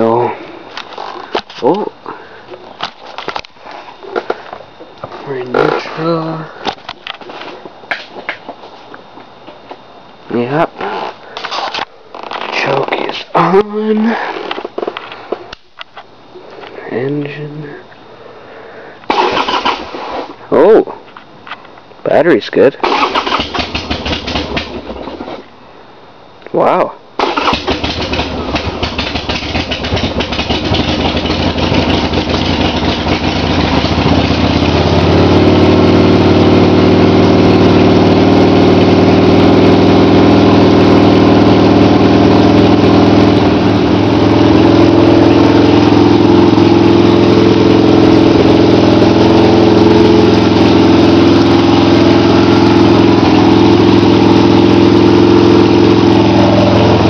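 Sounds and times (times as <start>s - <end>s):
motorcycle engine idling: 22.8s - 25.3s, 27.2s - 57.0s.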